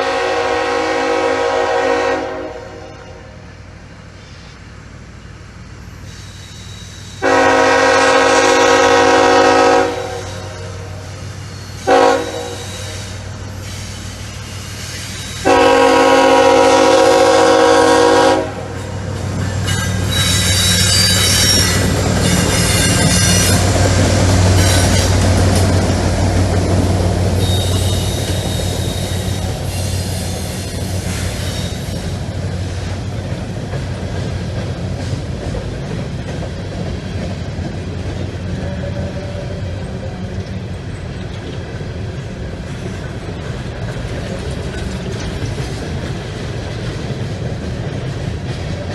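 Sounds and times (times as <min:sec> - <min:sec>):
locomotive air horn chord: 0:00.0 - 0:03.4, 0:07.2 - 0:11.1, 0:11.8 - 0:13.3, 0:15.4 - 0:18.8
wheels squealing on rail: 0:00.0 - 0:33.2, 0:38.1 - 0:41.6
freight cars rolling clatter: 0:18.6 - 0:48.9.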